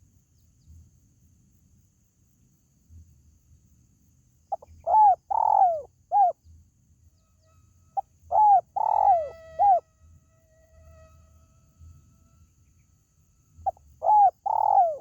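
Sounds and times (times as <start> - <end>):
dove cooing: 4.5 - 6.4, 8.3 - 9.8, 13.6 - 15.0.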